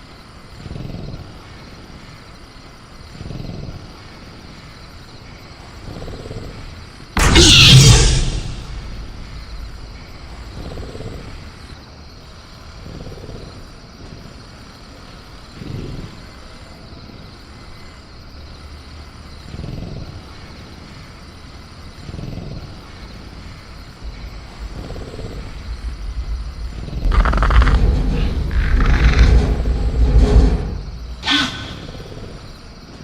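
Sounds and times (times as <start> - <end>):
low rumble and hiss: 3.2 - 33.0
soft low swells: 7.2 - 11.8, 24.0 - 31.2.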